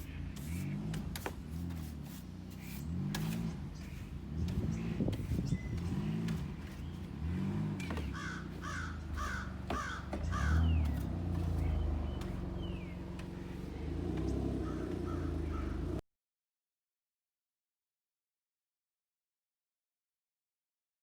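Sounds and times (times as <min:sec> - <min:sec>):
low engine hum: 0:00.0 - 0:16.0
crow cawing: 0:08.0 - 0:10.8, 0:14.6 - 0:15.8.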